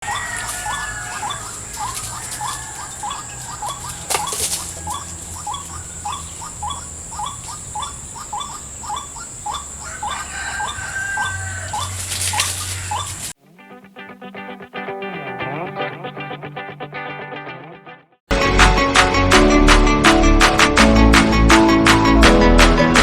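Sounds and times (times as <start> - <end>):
rustling: 0.0 - 6.6, 11.2 - 13.4
waterhen calling: 0.0 - 13.4.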